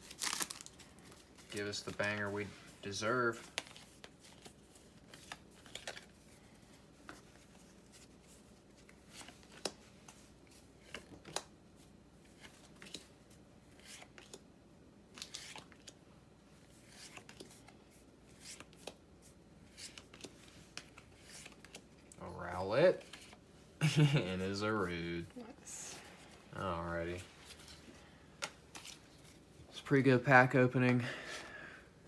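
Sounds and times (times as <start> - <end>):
foil wrapper crinkling: 0.0 - 1.1.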